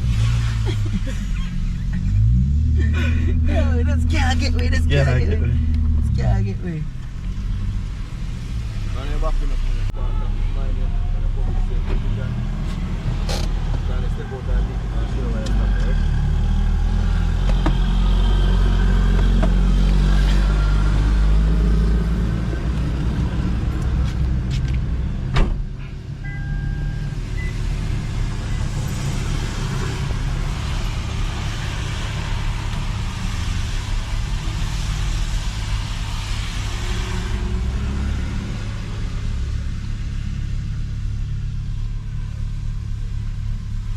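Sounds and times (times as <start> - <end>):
car engine rumbling: 0.0 - 43.9.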